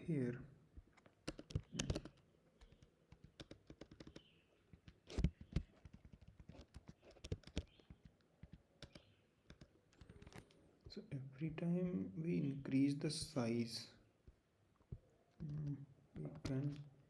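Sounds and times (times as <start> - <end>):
keyboard typing clicks: 1.0 - 4.3, 5.1 - 10.6.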